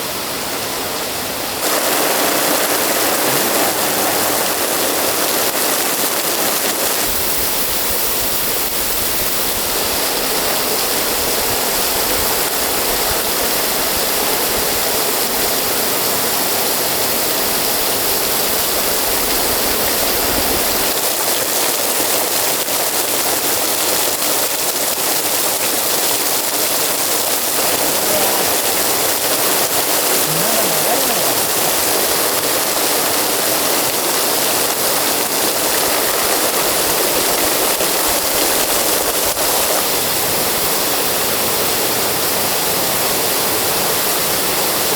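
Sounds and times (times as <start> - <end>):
heavy rain hissing: 1.6 - 7.8, 26.3 - 39.8.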